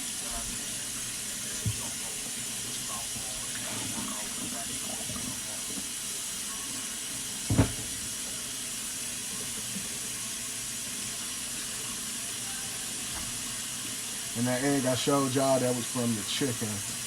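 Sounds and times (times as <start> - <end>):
tap running into sink: 1.6 - 1.9, 7.4 - 8.2.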